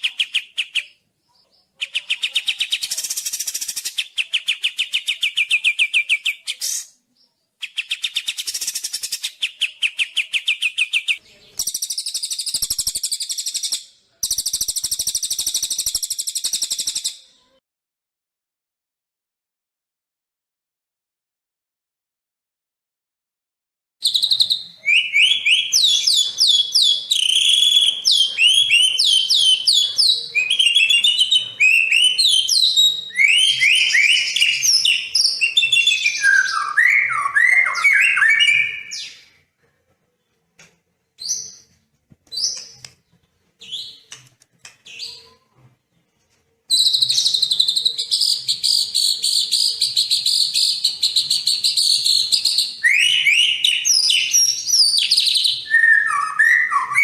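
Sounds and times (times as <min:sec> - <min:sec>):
songbird singing: 0:00.0 - 0:17.6, 0:24.0 - 0:39.4.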